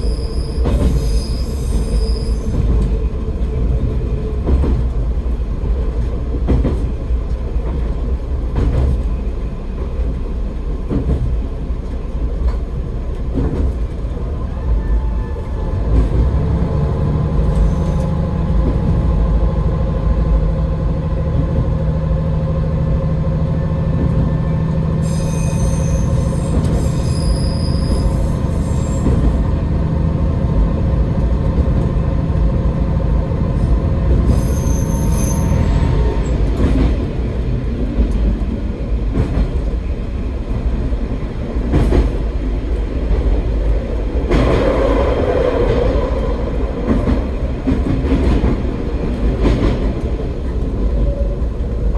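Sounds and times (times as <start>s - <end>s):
diesel railcar engine droning: 0.0s - 51.9s
wheels squealing: 25.0s - 29.5s, 34.2s - 36.3s.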